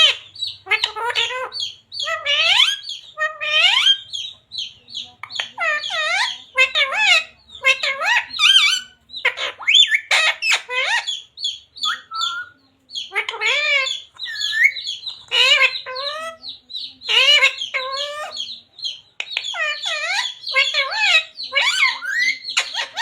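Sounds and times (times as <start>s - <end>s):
parrot squawking: 0.0s - 18.6s, 19.3s - 23.0s.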